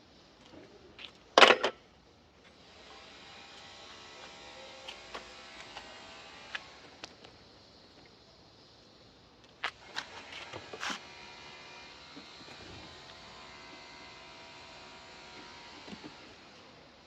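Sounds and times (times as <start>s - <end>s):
clicks and clinks of parts: 1.0s - 1.8s.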